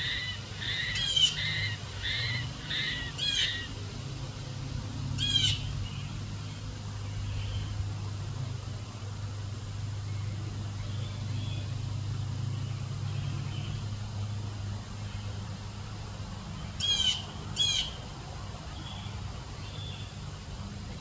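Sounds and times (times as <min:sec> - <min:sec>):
bird harsh warbling calls: 0:00.0 - 0:03.8, 0:05.2 - 0:05.8, 0:16.8 - 0:18.0
steady low hum: 0:00.0 - 0:21.0.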